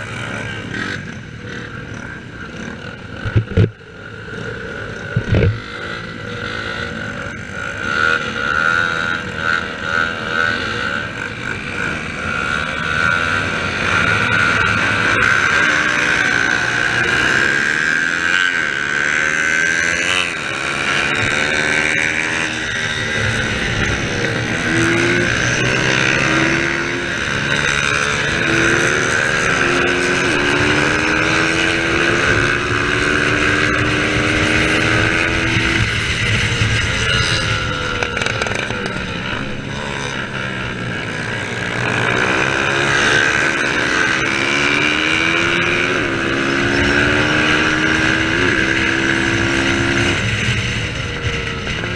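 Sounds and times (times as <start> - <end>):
racing motorcycles revving: 0.0 - 51.9.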